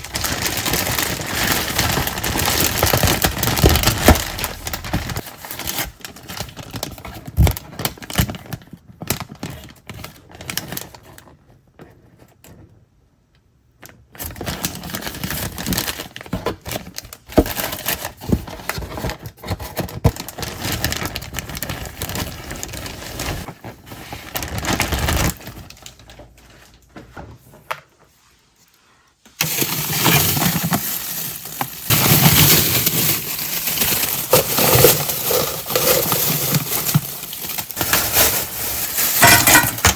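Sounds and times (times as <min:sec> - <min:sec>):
kitchen items clicking and clattering: 0:00.0 - 0:07.6, 0:29.4 - 0:39.9.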